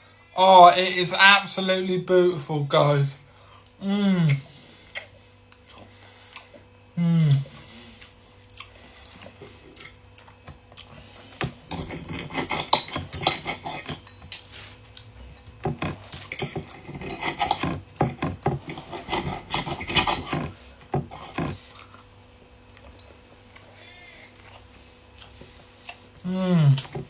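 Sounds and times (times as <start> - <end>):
cutlery scraping on a plate: 11.7 - 14.7, 15.7 - 21.6.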